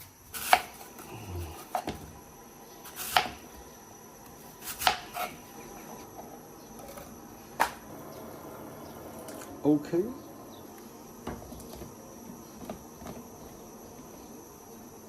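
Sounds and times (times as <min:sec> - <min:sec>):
knife chopping on cutting board: 0:00.4 - 0:00.8, 0:02.9 - 0:03.4, 0:04.6 - 0:05.4.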